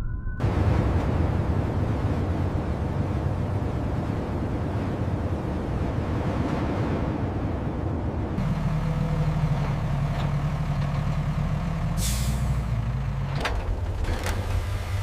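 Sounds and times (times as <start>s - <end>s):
heavy engine running: 7.3s - 15.0s.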